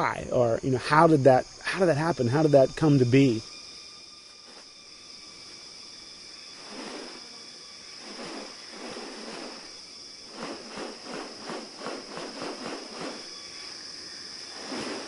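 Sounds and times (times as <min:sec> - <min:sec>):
insects droning: 0:00.0 - 0:15.0
short rustling bursts: 0:06.6 - 0:07.4, 0:08.0 - 0:13.7, 0:14.5 - 0:15.0.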